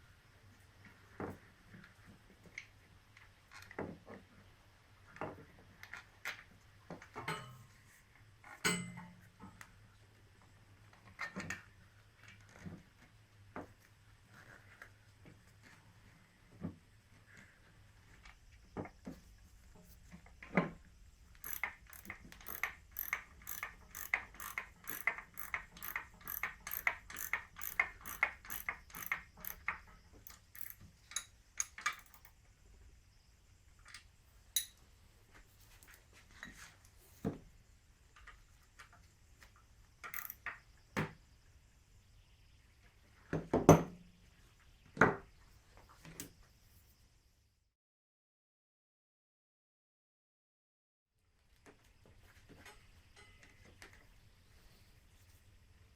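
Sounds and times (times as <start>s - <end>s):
ratchet wrench clicking: 21.4s - 32.3s, 40.1s - 40.5s.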